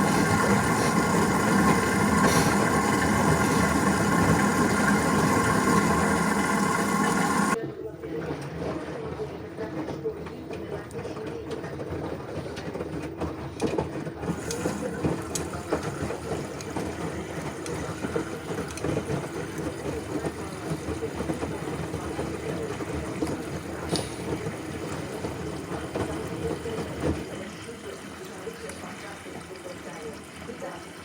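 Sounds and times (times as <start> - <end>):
washing machine churning water: 0.0 - 7.6, 14.1 - 31.0.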